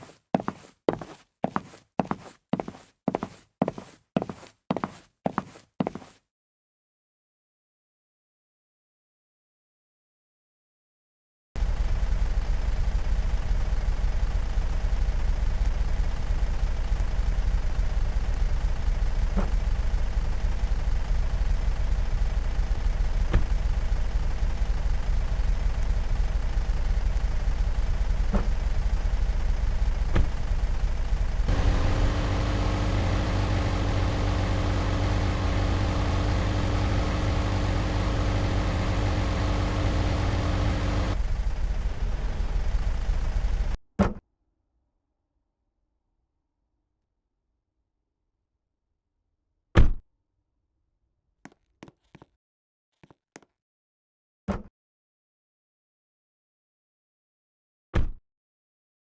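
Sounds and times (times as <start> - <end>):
steady drone with low hum: 11.6 - 43.8
vehicle engine and road rumble: 11.6 - 43.8.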